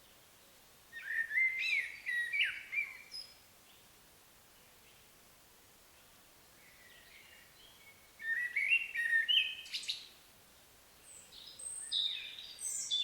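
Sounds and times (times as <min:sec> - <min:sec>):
songbird singing whistled notes: 0:00.9 - 0:03.8, 0:06.6 - 0:10.1, 0:11.0 - 0:13.0.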